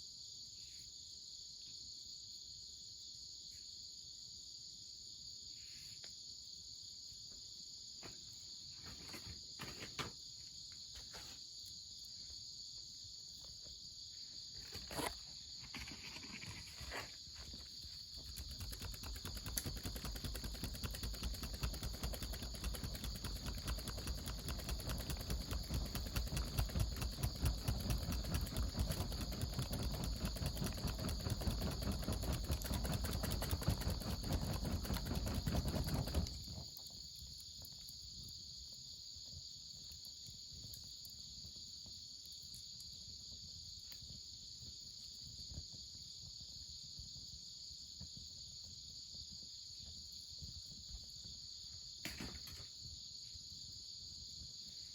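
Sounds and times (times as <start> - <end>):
crickets and insects chirping: 0.0 - 54.9
scattered pops: 14.8 - 37.0
wood fire crackling: 15.7 - 36.9.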